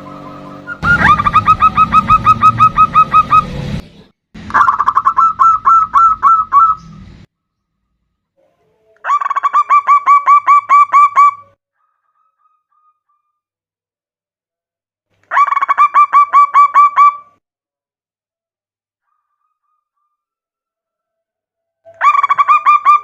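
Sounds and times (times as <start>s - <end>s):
dove cooing in fast runs: 0.0s - 3.4s
low hum: 0.0s - 7.3s.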